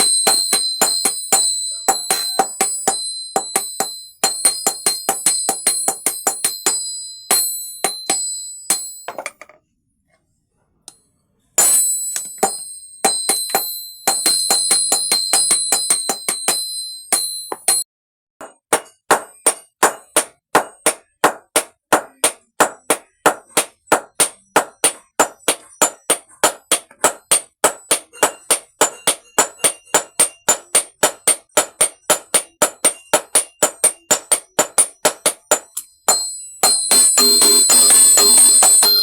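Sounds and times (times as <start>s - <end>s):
hammer striking metal on anvil: 0.0s - 9.6s, 11.6s - 39.0s.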